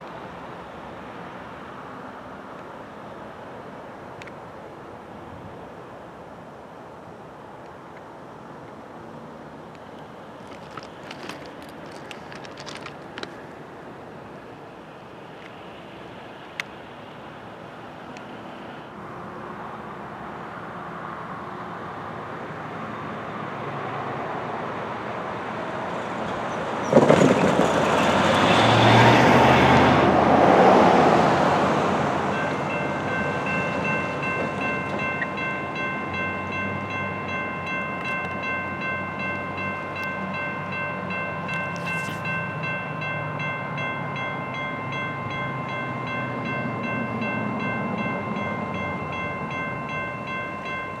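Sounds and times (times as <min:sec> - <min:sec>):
freight train rumbling: 0:09.0 - 0:21.0, 0:23.7 - 0:51.0
freight cars rolling by: 0:09.5 - 0:16.5, 0:24.8 - 0:51.0
locomotive rushing past: 0:25.8 - 0:50.6
crossing bell ringing: 0:32.3 - 0:51.0.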